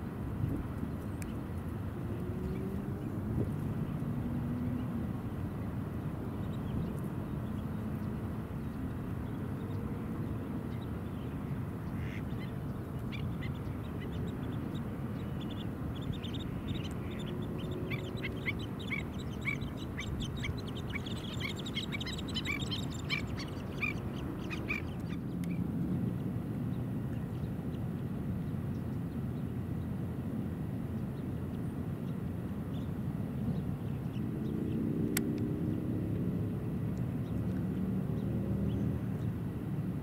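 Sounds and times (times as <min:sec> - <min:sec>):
birds calling: 0:11.1 - 0:25.6.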